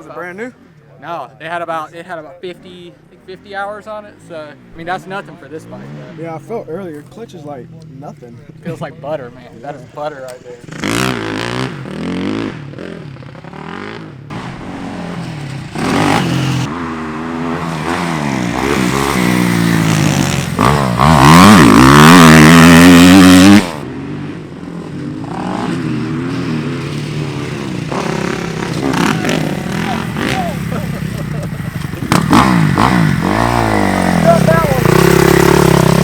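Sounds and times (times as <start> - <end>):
dirt bike engine revving: 10.4 - 36.0.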